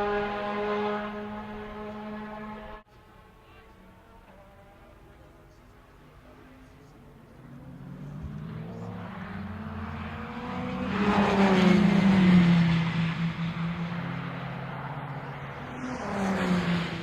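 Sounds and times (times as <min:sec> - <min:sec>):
race car passing at speed: 0:00.0 - 0:02.8, 0:06.6 - 0:17.0.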